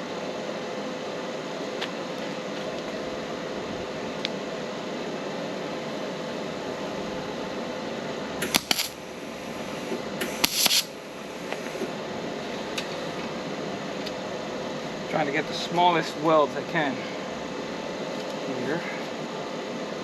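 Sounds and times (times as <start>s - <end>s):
fan humming: 0.0s - 20.0s
welding crackling bursts: 8.4s - 9.0s, 10.2s - 11.0s.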